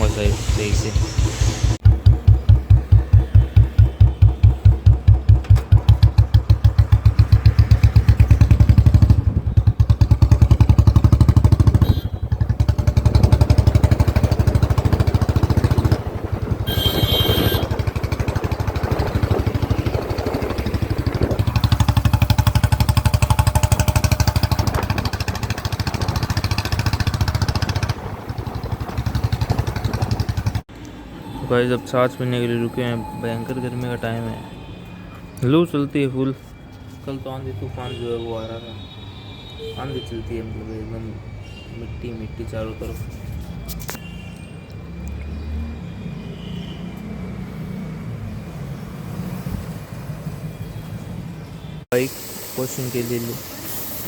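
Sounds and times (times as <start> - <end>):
motorcycle engine idling: 0.0 - 30.6.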